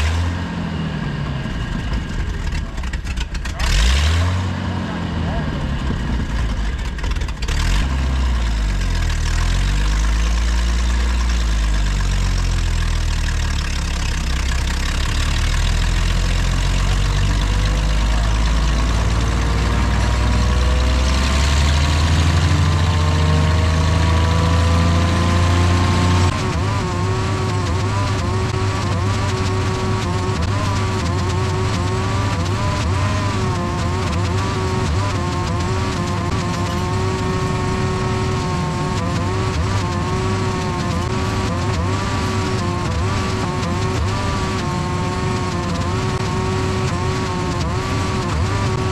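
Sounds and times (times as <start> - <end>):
diesel engine rumbling: 0.0 - 48.9.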